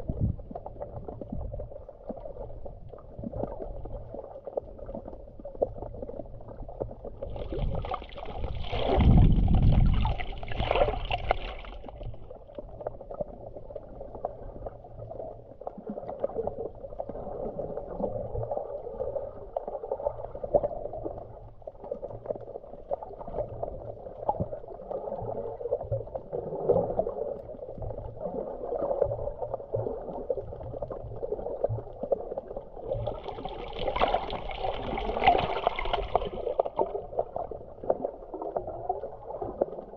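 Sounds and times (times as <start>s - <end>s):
sea water sloshing at shore: 7.1s - 13.4s, 28.2s - 39.9s.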